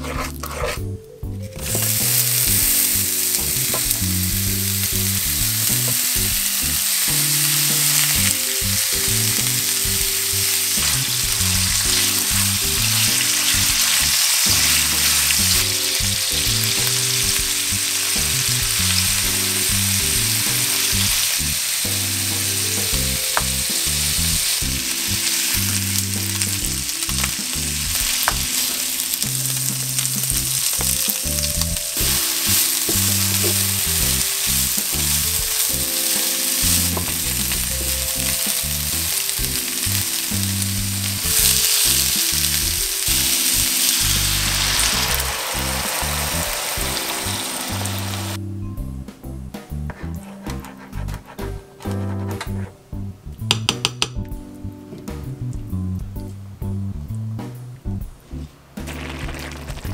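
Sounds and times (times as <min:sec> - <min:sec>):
stirring clicks and scrapes: 0:00.0 - 0:02.7, 0:32.0 - 0:38.6
pork sizzling in frying pan: 0:01.5 - 0:48.4, 0:58.8 - 0:59.9.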